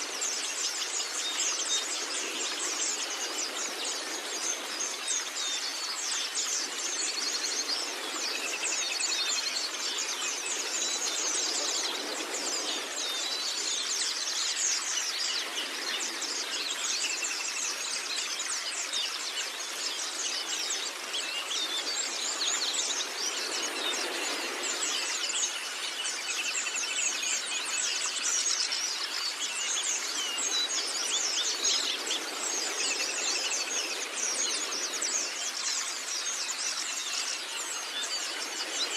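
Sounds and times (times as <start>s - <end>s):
small birds twittering: 0.0s - 38.9s.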